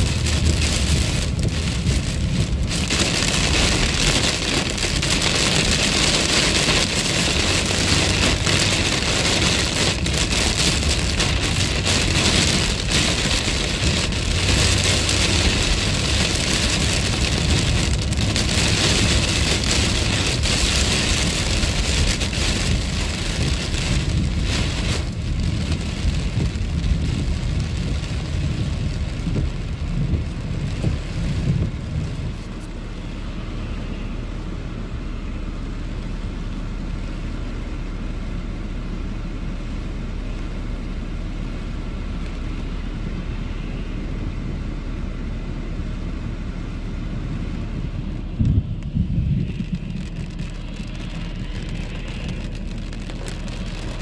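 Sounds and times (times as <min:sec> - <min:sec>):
rain on car roof: 0:00.0 - 0:34.0, 0:35.5 - 0:44.8, 0:45.4 - 0:54.0
low rumble: 0:00.0 - 0:54.0
tyre hiss on wet road: 0:48.0 - 0:54.0.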